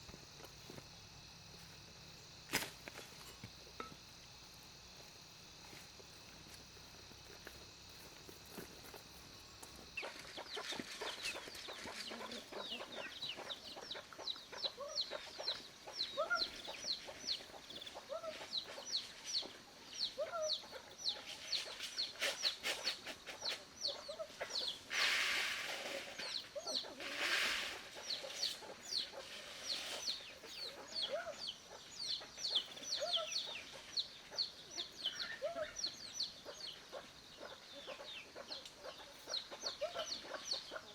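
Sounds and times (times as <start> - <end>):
hen clucking: 10.0 - 19.6
chicks peeping: 10.0 - 22.6, 27.9 - 40.9
rustling noises: 21.2 - 23.7, 24.4 - 30.5.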